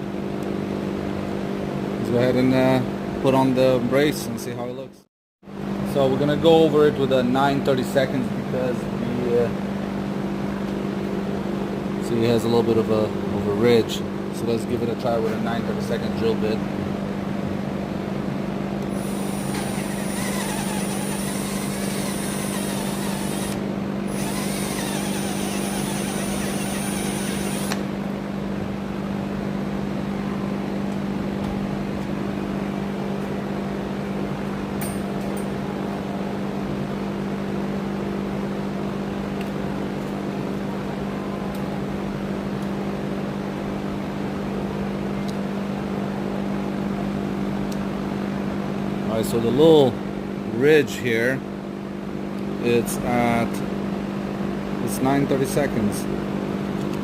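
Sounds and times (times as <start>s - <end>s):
steady low hum: 0.0s - 57.0s
cordless drill running: 18.9s - 27.8s.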